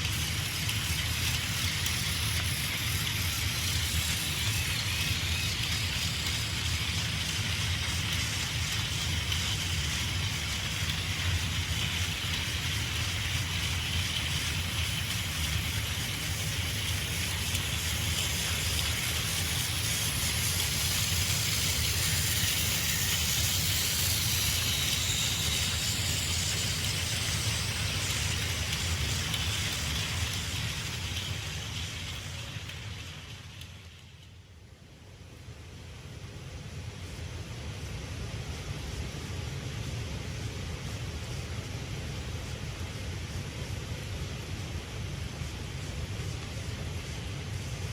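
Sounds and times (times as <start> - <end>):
wheels rattling over plastic rails: 0.0 - 34.1
toy train motor whir: 0.0 - 34.3.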